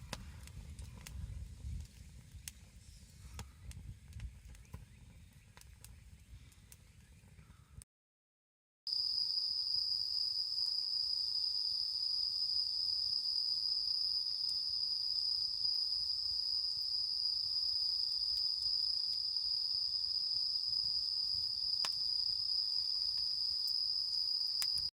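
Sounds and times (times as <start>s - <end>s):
crickets trilling: 8.9s - 24.9s.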